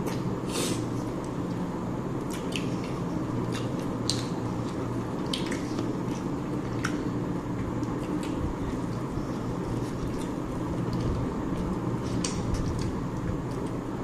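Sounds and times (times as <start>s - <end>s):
low background hum: 0.0s - 14.0s
wet chewing smacks: 2.3s - 7.0s.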